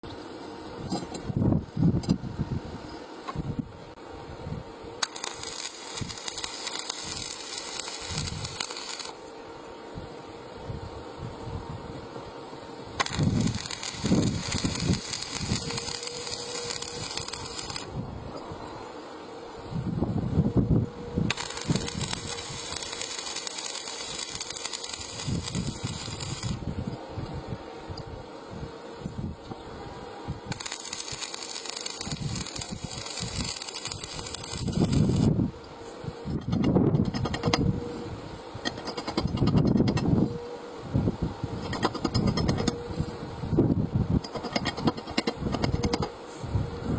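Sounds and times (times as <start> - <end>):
welding arc crackling and hissing: 5.0 - 9.3, 12.8 - 18.0, 21.2 - 27.0, 30.3 - 40.4, 41.0 - 46.5.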